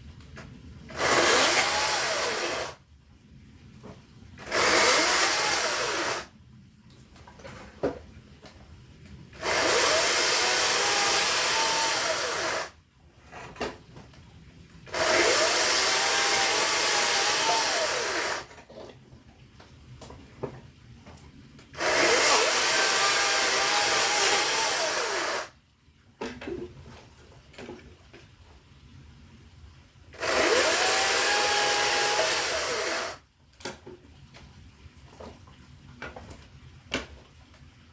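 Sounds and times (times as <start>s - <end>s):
power saw cutting wood: 0.9s - 2.8s, 4.4s - 6.3s, 9.4s - 12.8s, 14.9s - 18.5s, 21.8s - 25.5s, 30.2s - 33.2s.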